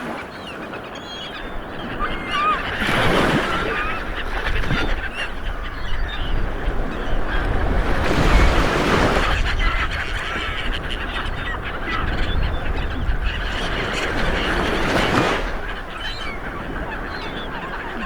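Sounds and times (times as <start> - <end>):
wavering bird calls: 0.0 - 18.0
waves washing on shore: 1.5 - 5.7, 6.5 - 9.9, 12.7 - 18.0.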